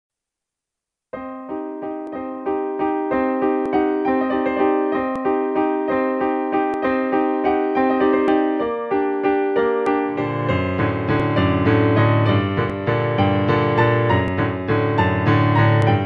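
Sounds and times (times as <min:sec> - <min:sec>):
piano music: 0:01.2 - 0:16.0.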